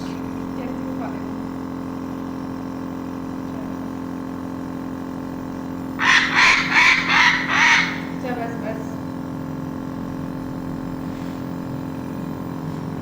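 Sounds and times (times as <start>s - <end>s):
steady low hum: 0.0s - 13.0s
parrot squawking: 6.0s - 8.9s.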